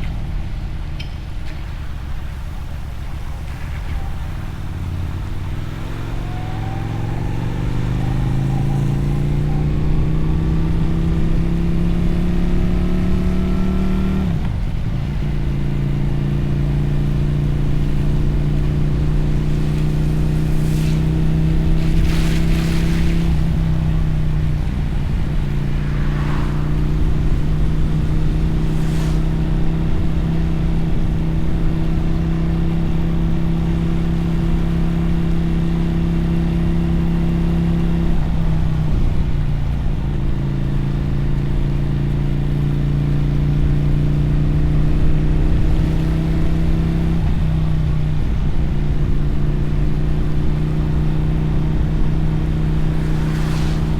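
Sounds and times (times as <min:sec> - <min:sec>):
motorcycle engine accelerating: 0:01.6 - 0:53.9
brief hissing swells: 0:19.4 - 0:30.6, 0:52.2 - 0:53.9.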